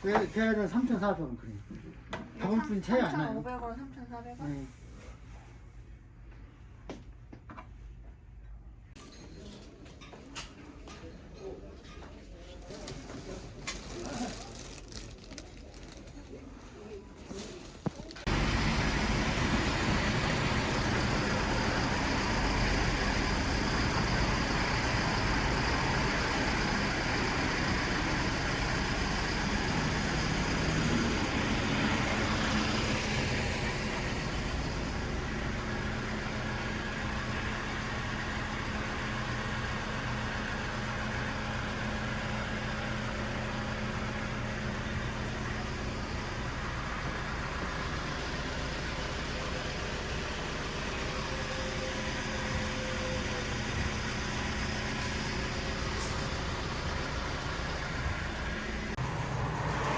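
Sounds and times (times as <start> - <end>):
vehicle engine and road noise: 12.6 - 59.9.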